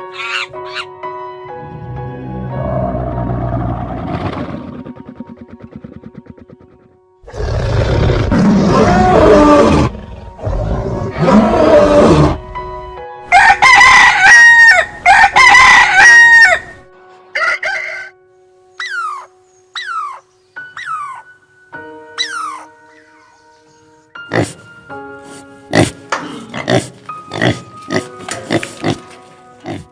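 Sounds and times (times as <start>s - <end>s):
rooster crowing: 13.3s - 16.8s, 17.4s - 18.2s.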